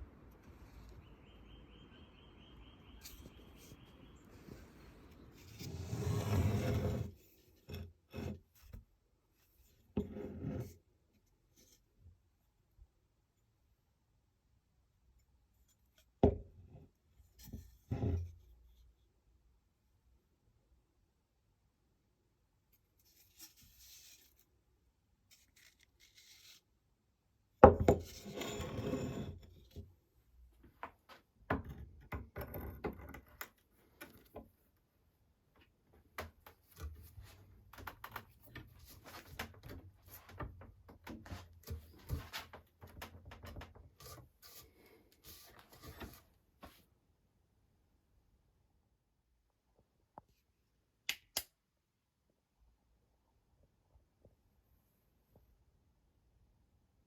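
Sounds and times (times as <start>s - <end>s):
wood scraping and rubbing: 3.1s - 7.2s
small clicks and scrapes: 22.7s - 24.5s, 25.2s - 26.7s.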